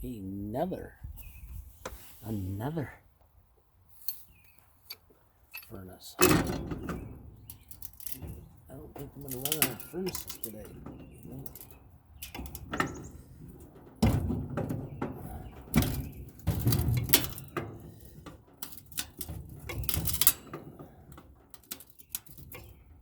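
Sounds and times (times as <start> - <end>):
sheet metal clanking and banging: 6.2 - 23.0.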